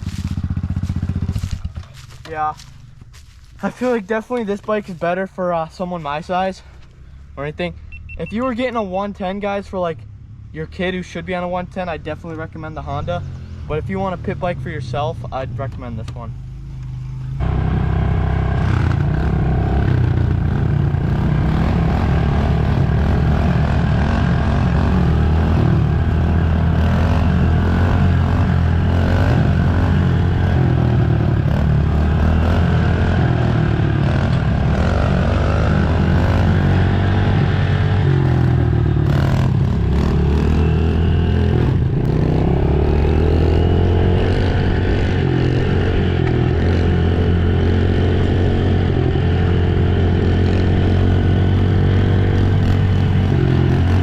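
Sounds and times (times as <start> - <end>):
dirt bike engine revving: 0.0 - 4.8, 17.4 - 54.0.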